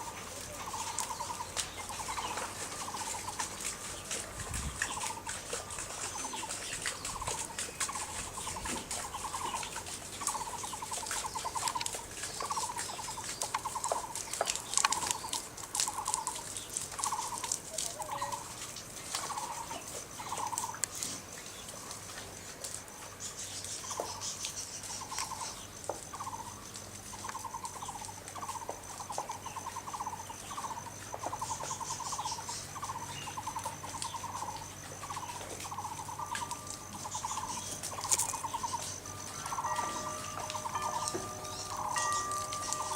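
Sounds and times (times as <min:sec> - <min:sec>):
animal calling in rattling notes: 0:04.8 - 0:18.6, 0:26.2 - 0:42.9
high-pitched insect-like tone: 0:27.1 - 0:42.9.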